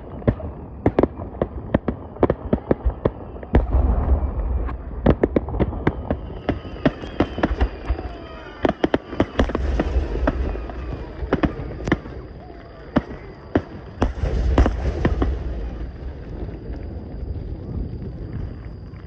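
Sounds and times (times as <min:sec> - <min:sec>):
fireworks bangs and crackles: 0:00.0 - 0:19.0
deep rumble: 0:13.2 - 0:19.0.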